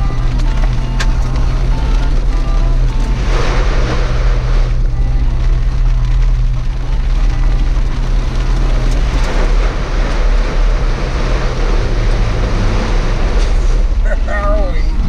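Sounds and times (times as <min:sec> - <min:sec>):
car engine running: 0:00.0 - 0:15.0
rain hissing: 0:00.0 - 0:15.0.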